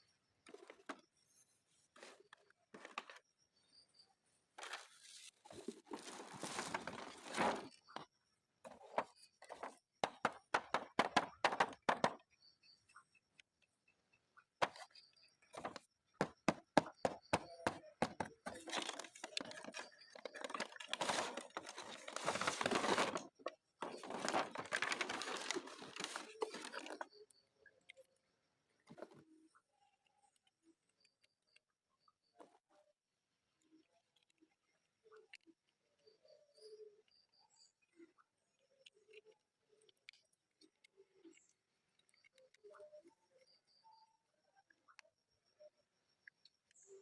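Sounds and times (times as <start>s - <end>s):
plastic and cardboard crinkling: 4.6s - 8.0s, 8.7s - 12.2s, 15.6s - 16.4s, 17.1s - 27.1s.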